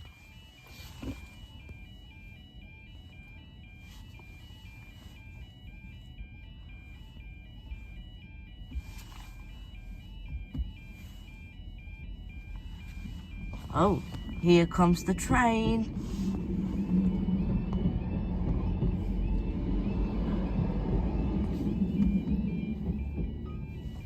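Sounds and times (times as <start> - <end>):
level crossing alarm warble: 0.0 - 24.0
low rumble: 7.4 - 24.0.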